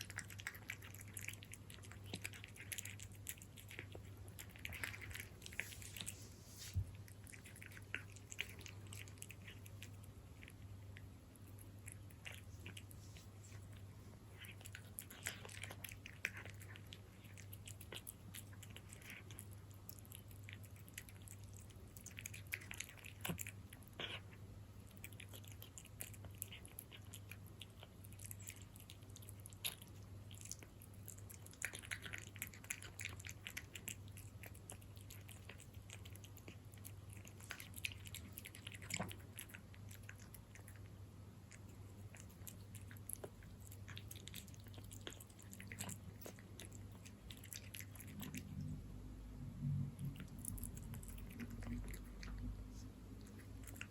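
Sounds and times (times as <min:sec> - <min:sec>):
cat chewing wet food: 0:00.0 - 0:53.9
low hum: 0:47.8 - 0:53.9.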